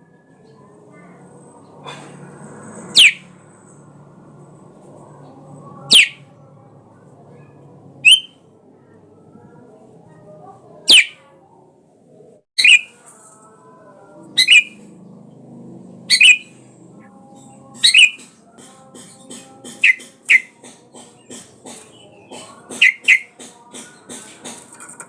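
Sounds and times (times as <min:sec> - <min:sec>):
bird giving short sharp calls: 0:08.0 - 0:08.3, 0:10.9 - 0:11.2.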